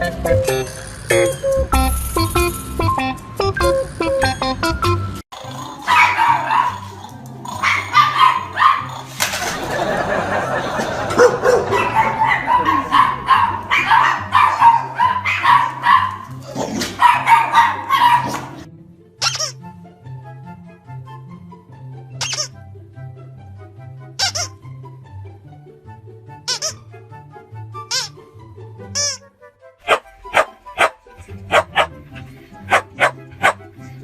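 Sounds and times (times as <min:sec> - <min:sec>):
background music with low beat: 0:00.0 - 0:05.2, 0:10.3 - 0:22.1, 0:29.8 - 0:34.0
dog barking: 0:05.9 - 0:06.9, 0:07.6 - 0:09.1, 0:11.1 - 0:18.6, 0:29.8 - 0:33.7.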